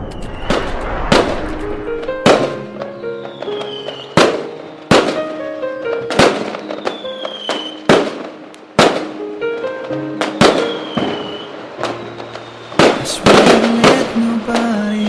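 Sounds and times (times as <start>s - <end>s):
firework whistles falling in pitch: 0.0s - 1.3s, 2.3s - 5.2s, 6.1s - 8.1s, 10.2s - 14.0s
firework bangs with crackles: 0.0s - 9.2s, 9.8s - 15.0s
instrumental song intro: 0.0s - 15.0s.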